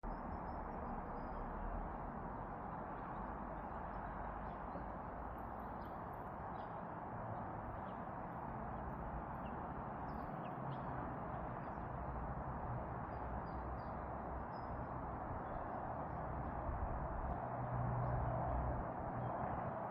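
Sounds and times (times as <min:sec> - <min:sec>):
small birds chirping: 0:02.6 - 0:12.0.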